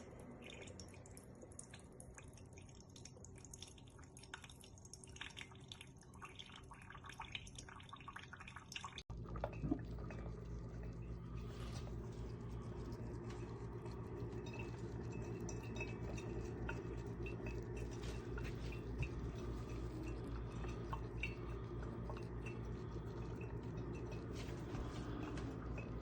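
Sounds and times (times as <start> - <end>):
coffee maker dripping and bubbling: 0.0 - 26.0
steady low hum: 9.1 - 26.0.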